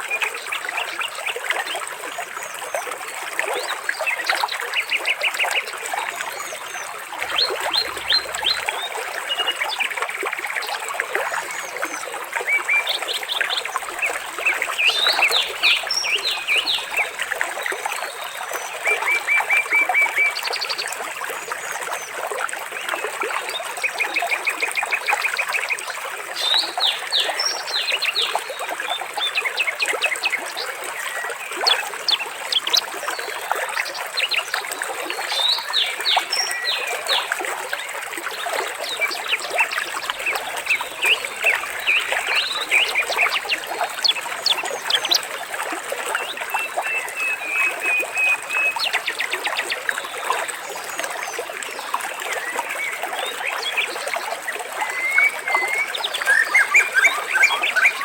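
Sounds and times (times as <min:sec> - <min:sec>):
water trickling: 0:00.1 - 0:58.0
birds chirping: 0:07.2 - 0:09.5, 0:13.3 - 0:17.3, 0:38.9 - 0:45.5.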